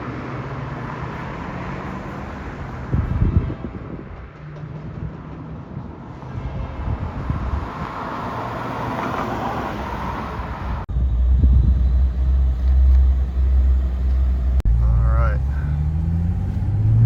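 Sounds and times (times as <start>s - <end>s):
deep low rumble: 10.8s - 17.0s
car engine idling: 10.9s - 17.0s.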